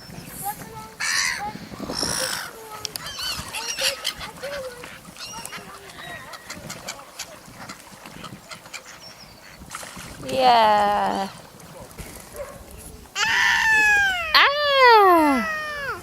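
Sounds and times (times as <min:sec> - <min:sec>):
waterfowl calling: 0:01.0 - 0:09.8, 0:13.2 - 0:16.0.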